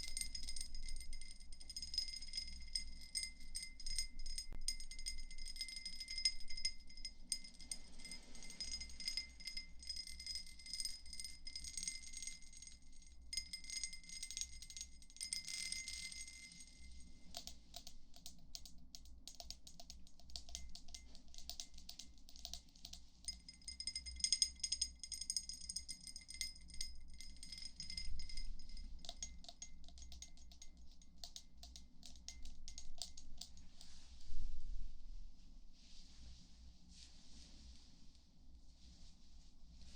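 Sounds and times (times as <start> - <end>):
light quick taps and clicks: 17.3 - 23.4.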